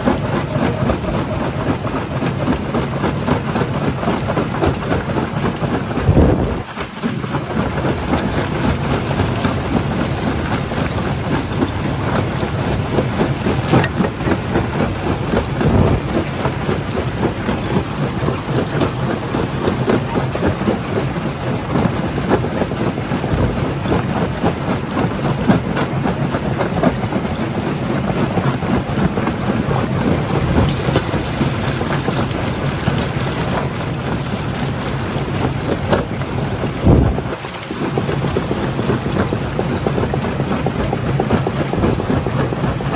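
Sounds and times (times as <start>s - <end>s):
rock crusher rumbling: 0.0s - 24.5s, 28.3s - 42.9s
rocks clattering and breaking: 30.4s - 36.1s.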